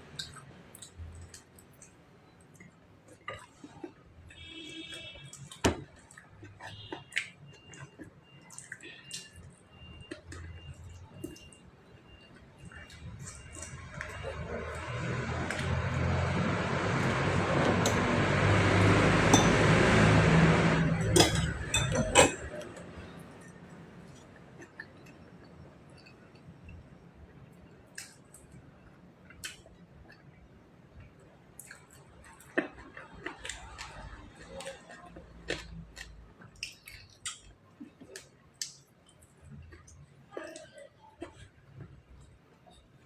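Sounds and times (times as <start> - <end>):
glass clinking: 17.8 - 18.2, 19.2 - 20.2, 20.8 - 23.2.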